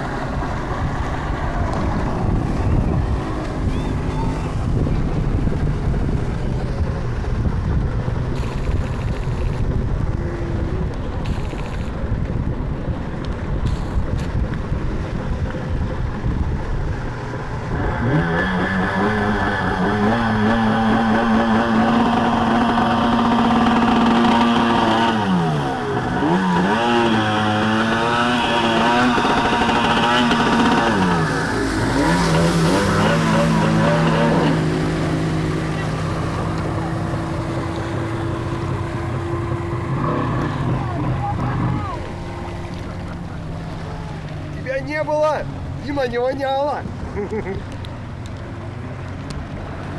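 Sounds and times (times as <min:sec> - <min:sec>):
outboard motor revving: 0:00.0 - 0:49.9
water rushing: 0:00.0 - 0:49.9
wind: 0:00.0 - 0:49.9.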